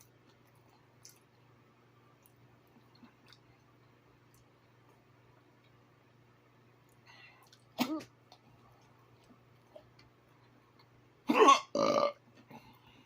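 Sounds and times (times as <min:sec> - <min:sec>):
faint low hum: 0:00.0 - 0:13.0
person throaty vocal sound: 0:11.3 - 0:12.2.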